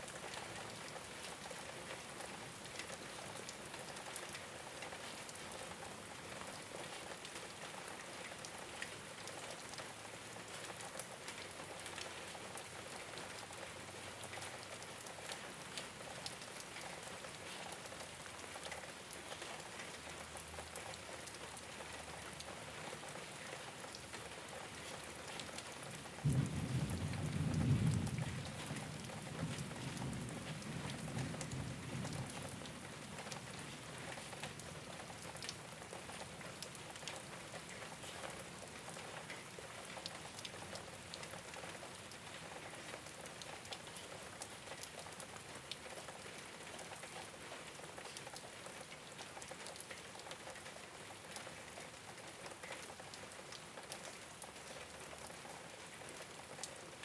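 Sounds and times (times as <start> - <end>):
rain on a rooftop: 0.0 - 57.0
low thunder rumble: 26.2 - 32.4.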